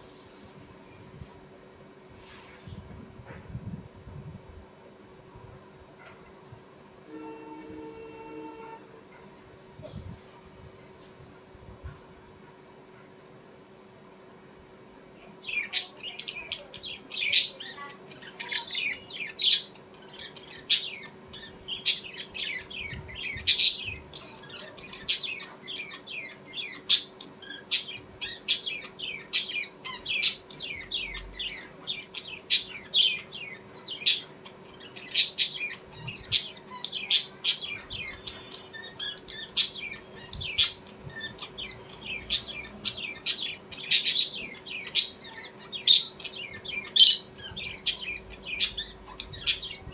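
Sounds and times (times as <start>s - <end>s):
faint steady hum: 0.0s - 49.9s
small birds chirping: 15.2s - 49.9s.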